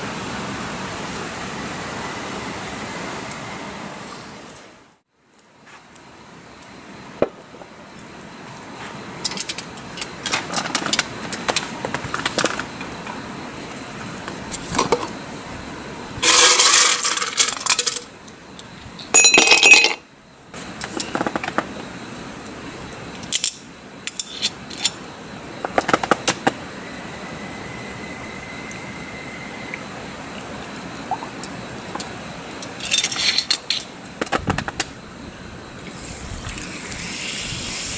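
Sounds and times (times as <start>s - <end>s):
noisy bursts: 0.0s - 5.0s, 25.0s - 37.9s
outdoor background hiss: 0.0s - 37.9s.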